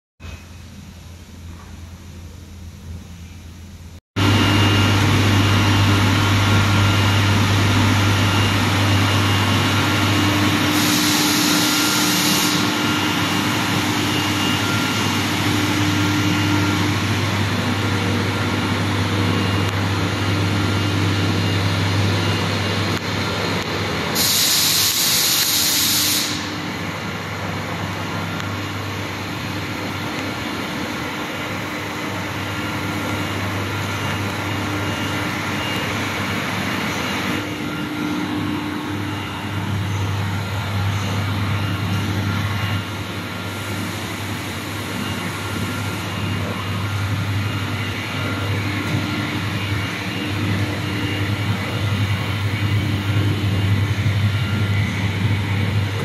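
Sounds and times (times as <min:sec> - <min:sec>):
hopper dryer humming: 0:02.0 - 0:56.0
blower noise: 0:04.2 - 0:56.0
hissing bursts: 0:24.1 - 0:26.6.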